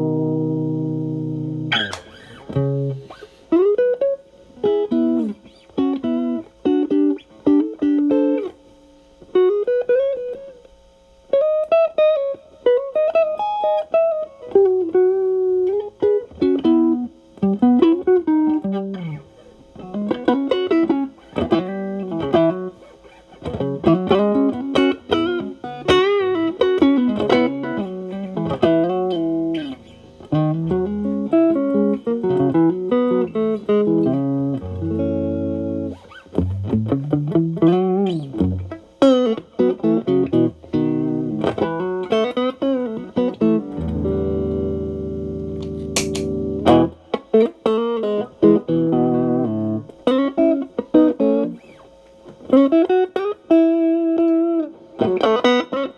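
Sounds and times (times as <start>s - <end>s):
overdriven electric guitar licks: 0.0s - 55.9s
pedal switch click: 1.7s - 2.4s, 45.6s - 46.3s.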